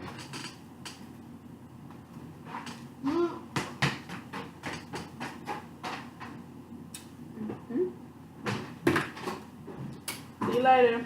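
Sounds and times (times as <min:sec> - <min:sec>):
person humming: 0:03.0 - 0:03.5.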